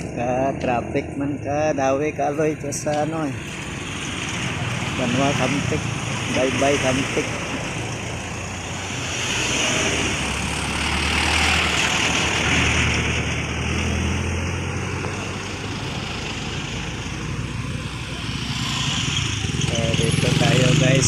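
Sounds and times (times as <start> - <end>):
steady street noise: 0.0 - 21.0
vehicle passing: 0.0 - 21.0.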